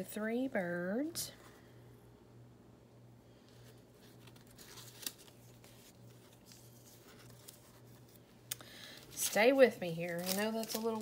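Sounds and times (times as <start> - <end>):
magazine paper rustling: 3.6 - 11.0.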